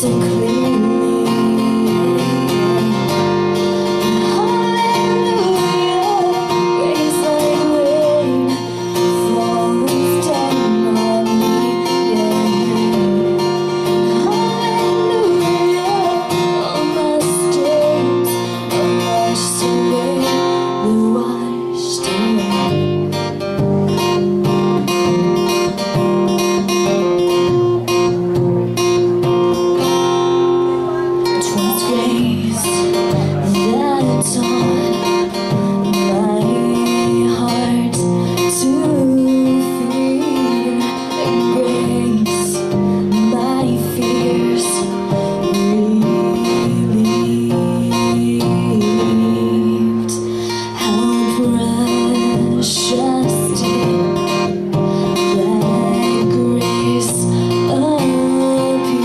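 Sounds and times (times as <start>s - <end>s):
person singing: 0.0s - 23.2s, 29.6s - 59.0s
acoustic guitar strumming: 0.0s - 59.0s.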